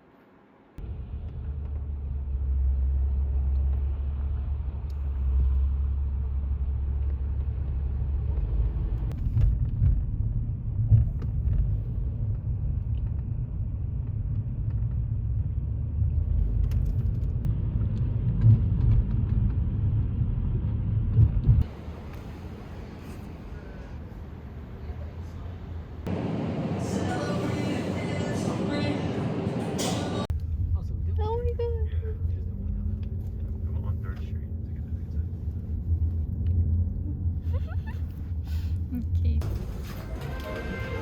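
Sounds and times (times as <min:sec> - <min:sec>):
car rumbling on the move: 0:00.8 - 0:24.7, 0:25.7 - 0:41.0.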